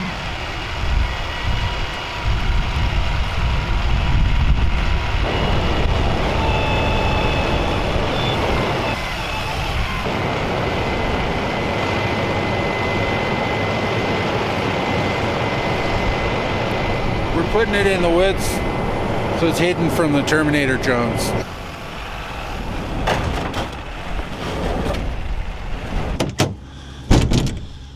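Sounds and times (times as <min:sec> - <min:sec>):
truck engine running: 0:00.0 - 0:11.8, 0:25.5 - 0:27.9.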